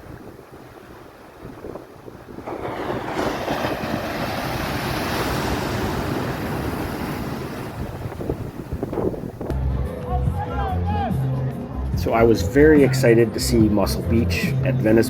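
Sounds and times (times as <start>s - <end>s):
ocean surf: 0.0s - 9.5s
wind buffeting microphone: 0.0s - 9.6s.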